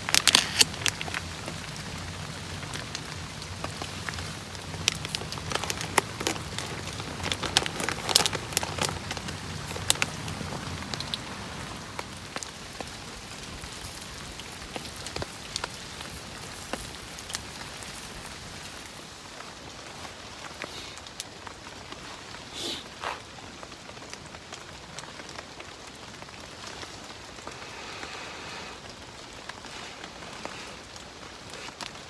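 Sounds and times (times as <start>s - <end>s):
rain on shelter: 0.0s - 32.0s.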